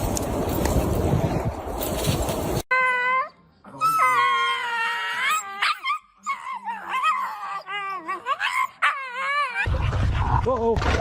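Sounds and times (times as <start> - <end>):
dog howling and whining: 2.7 - 9.7.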